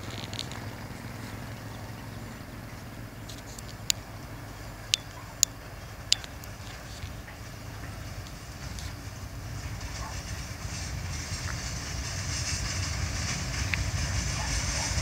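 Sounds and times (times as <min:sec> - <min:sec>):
faint clicks: 0:00.0 - 0:02.4, 0:03.2 - 0:09.1
boxcars rumbling along track: 0:00.0 - 0:15.0
hiss: 0:05.6 - 0:15.0.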